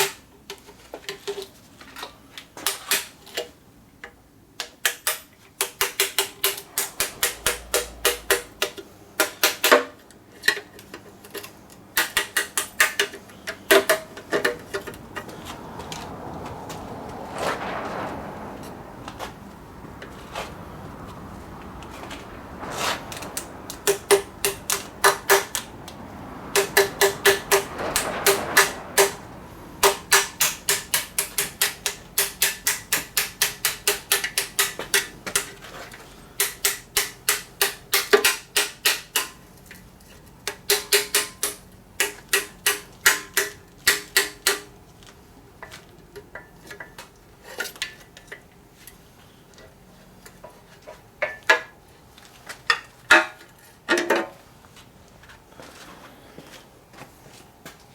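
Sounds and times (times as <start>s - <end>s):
hand tools clicking on metal: 4.6s - 15.4s, 23.1s - 25.7s, 26.5s - 29.2s, 29.8s - 39.8s, 40.4s - 44.7s.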